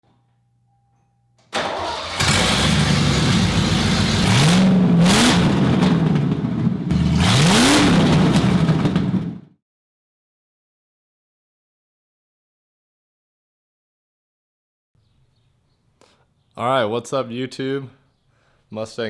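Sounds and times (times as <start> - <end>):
car engine revving: 1.6 - 9.4.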